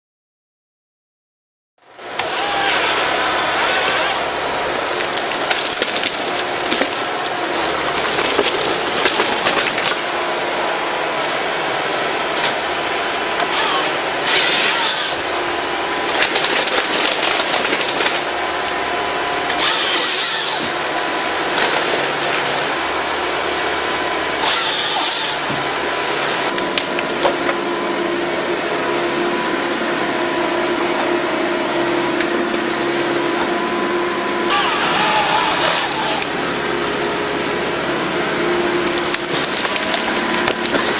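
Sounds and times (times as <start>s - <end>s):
harvester engine and hydraulics: 1.9s - 40.9s
saw cutting through trunks: 2.0s - 27.6s, 34.5s - 40.9s
wood clicking and cracking: 2.2s - 10.0s, 16.1s - 18.3s, 38.8s - 40.9s.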